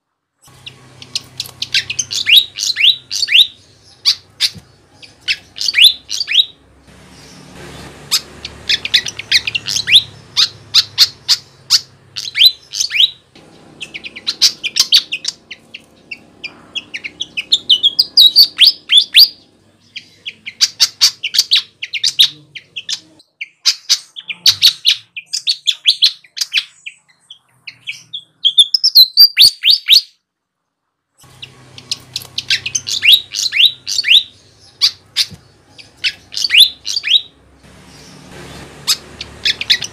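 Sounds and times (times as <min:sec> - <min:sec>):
flycatcher singing: 0:00.5 - 0:23.6, 0:31.2 - 0:39.9.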